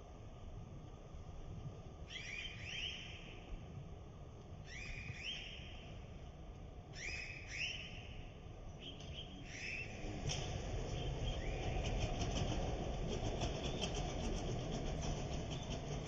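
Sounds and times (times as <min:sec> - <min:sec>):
low steady rumble: 0:00.0 - 0:16.0
bird whistling calls: 0:02.1 - 0:03.4, 0:04.7 - 0:05.9, 0:07.0 - 0:08.2, 0:08.8 - 0:10.0, 0:11.0 - 0:11.9.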